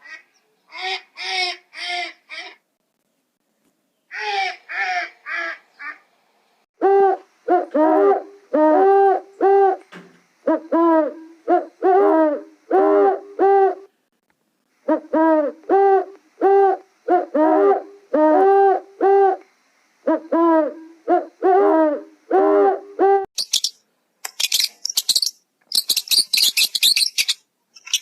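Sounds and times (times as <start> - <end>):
clear arching animal calls: 4.1 - 6.0.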